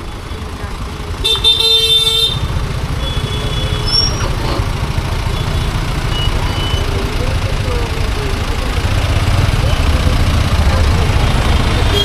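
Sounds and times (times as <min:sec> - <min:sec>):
road and wind rumble: 0:00.0 - 0:12.0
vehicle horn blaring: 0:01.2 - 0:04.2, 0:11.6 - 0:12.0.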